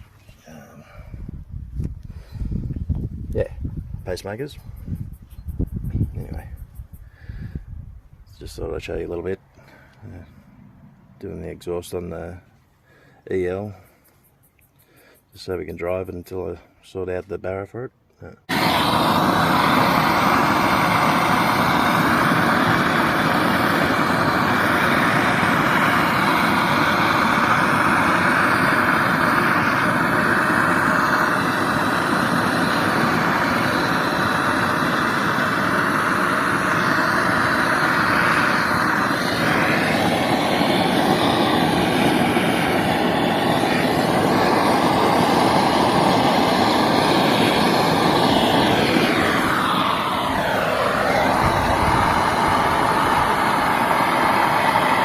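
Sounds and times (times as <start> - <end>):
torch flame blowing: 18.4 - 55.0.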